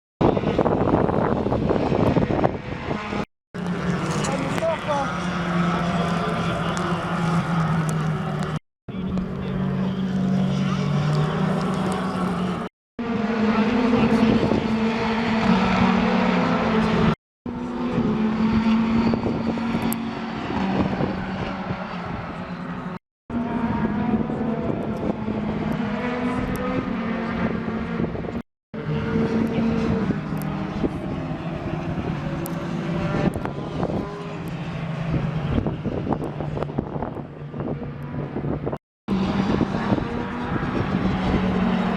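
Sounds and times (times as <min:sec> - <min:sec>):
race car engines racing past: 0:00.2 - 0:41.9.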